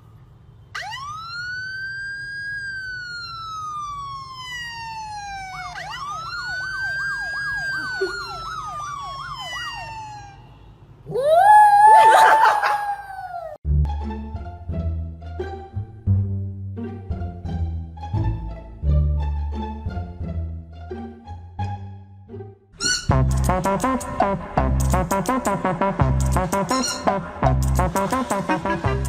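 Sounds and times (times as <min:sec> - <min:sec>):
siren yelp: 0:00.7 - 0:13.6
siren wailing: 0:00.8 - 0:13.6.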